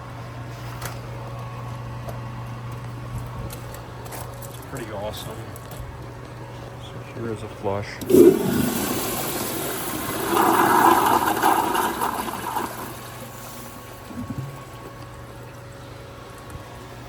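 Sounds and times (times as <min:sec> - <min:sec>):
toilet flushing: 0:08.0 - 0:15.0.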